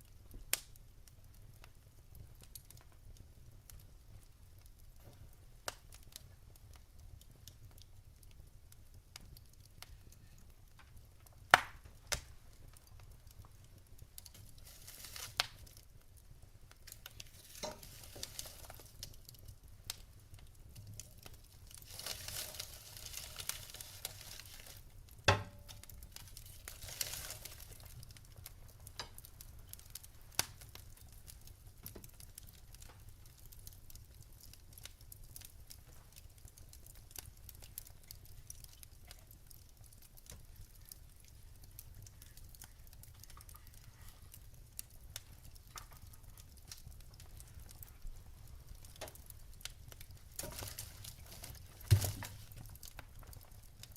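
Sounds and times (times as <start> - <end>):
fire crackling and popping: 0.0 - 53.9
hiss of flames: 14.1 - 16.0, 16.8 - 25.3, 26.0 - 28.2.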